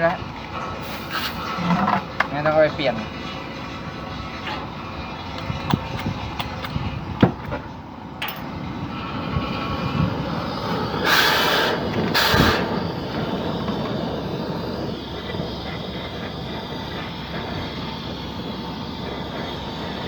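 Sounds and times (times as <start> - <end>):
machinery rumble: 0.0 - 20.0
compressed air hissing: 0.8 - 1.6, 9.2 - 20.0
sharp clicks: 5.4 - 7.5.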